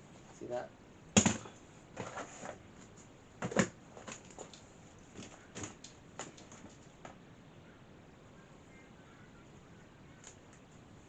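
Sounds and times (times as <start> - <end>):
knocks and clicks of objects handled: 1.2 - 7.2.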